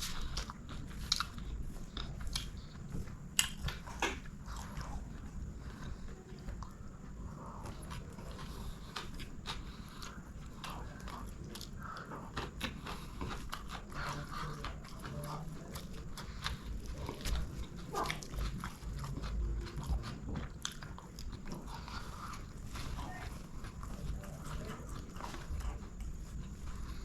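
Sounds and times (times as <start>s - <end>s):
close-miked chewing: 0.0s - 27.0s
food crunching: 0.0s - 27.0s
wet mouth clicks and smacks: 3.4s - 4.3s.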